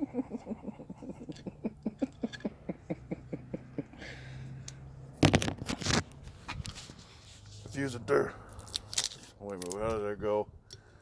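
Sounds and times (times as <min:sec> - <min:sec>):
man chuckling: 0:00.0 - 0:04.3.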